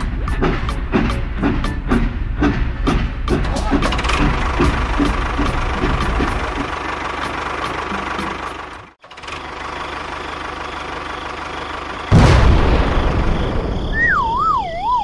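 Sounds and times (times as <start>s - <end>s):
engine running: 0.0s - 14.5s.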